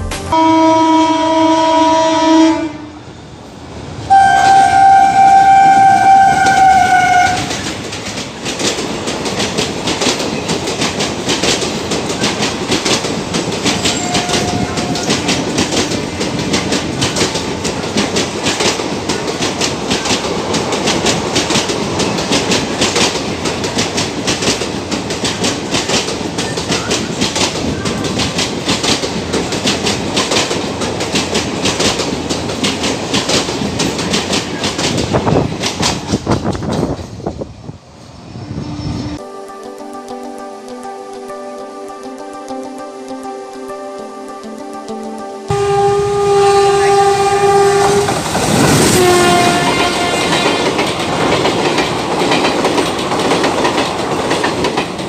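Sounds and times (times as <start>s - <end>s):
train rumble: 0.0s - 39.2s, 45.5s - 55.0s
train horn blasts: 0.1s - 3.0s, 4.1s - 7.6s, 13.8s - 15.8s, 45.5s - 50.9s
train wheels clickety-clack: 4.1s - 37.6s, 47.4s - 55.0s.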